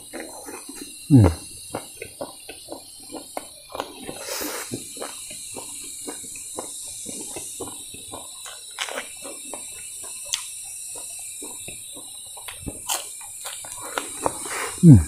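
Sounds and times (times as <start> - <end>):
crunch: 0.0 - 15.0
man chewing crispy rice: 0.0 - 15.0
mouth smacks: 0.1 - 1.9, 12.5 - 15.0.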